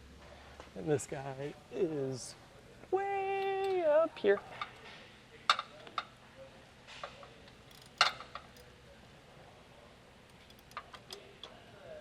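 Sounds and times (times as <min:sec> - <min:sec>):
metallic ratchet clicks: 0:07.4 - 0:11.3.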